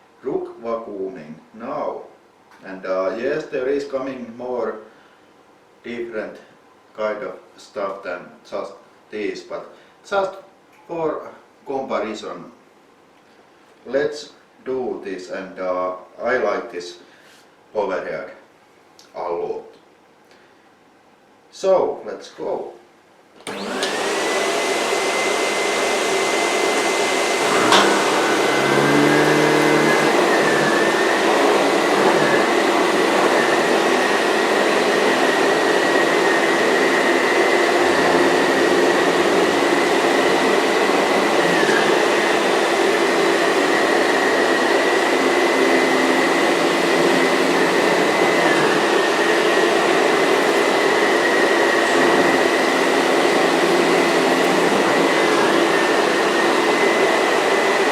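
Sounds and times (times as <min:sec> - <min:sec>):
vacuum cleaner motor whine: 0:23.4 - 0:57.9.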